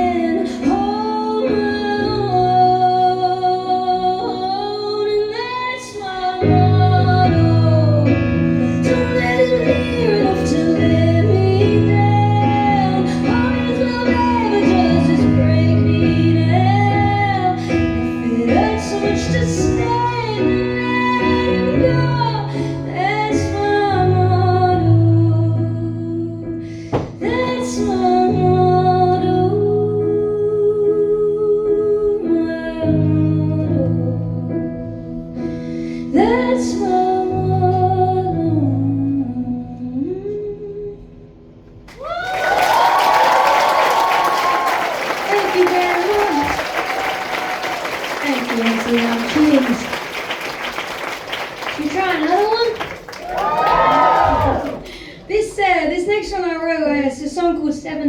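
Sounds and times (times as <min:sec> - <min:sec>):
audience applause and cheering: 0:41.9 - 0:55.2.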